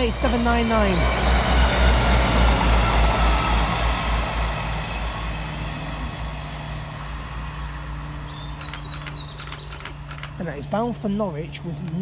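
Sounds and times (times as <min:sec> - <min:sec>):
diesel train rumbling past: 0:00.0 - 0:12.0.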